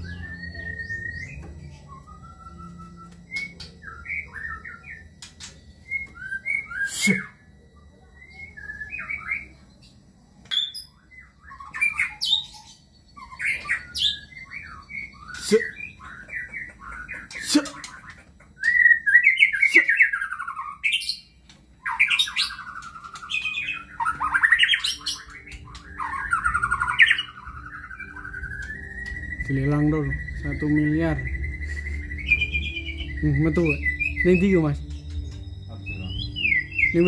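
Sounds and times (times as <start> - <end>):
loud sharp bird notes: 0.0 - 7.5, 10.5 - 37.0
songbird whistling varied phrases: 21.8 - 34.8.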